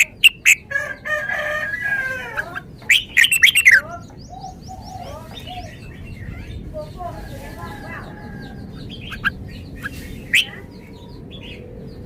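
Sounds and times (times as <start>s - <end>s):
drawn-out bird call: 0.0s - 11.7s
faint bird chirps: 2.4s - 12.0s
bulbul singing sharp notes: 2.8s - 3.9s.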